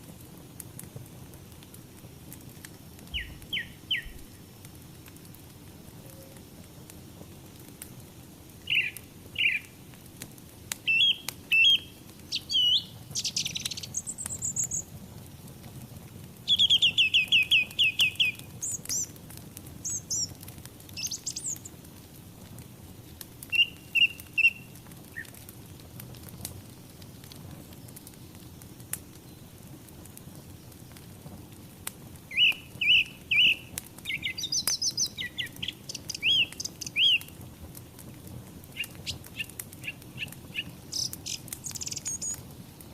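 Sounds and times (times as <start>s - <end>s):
wood fire rushing and crackling: 0.0s - 42.9s
songbirds chirping: 3.1s - 4.5s, 8.6s - 9.8s, 10.8s - 15.4s, 16.5s - 19.2s, 19.8s - 21.8s, 23.5s - 25.4s, 32.3s - 37.4s, 38.7s - 42.9s
bird trill: 8.7s - 9.7s, 10.9s - 14.8s, 23.5s - 24.6s, 32.3s - 37.2s, 39.8s - 42.4s.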